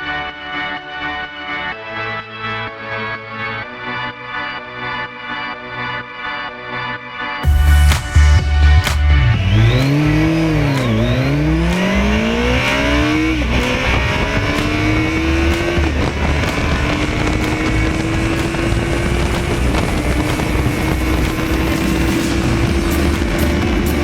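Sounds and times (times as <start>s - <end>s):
motorcycle engine revving: 9.2s - 24.0s.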